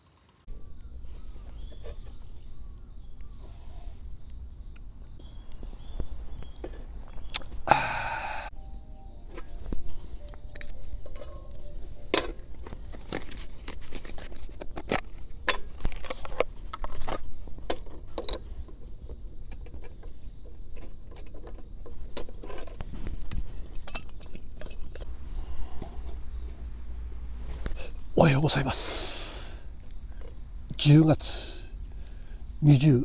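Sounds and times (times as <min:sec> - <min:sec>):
small objects clicking and tapping: 0:09.3 - 0:25.1.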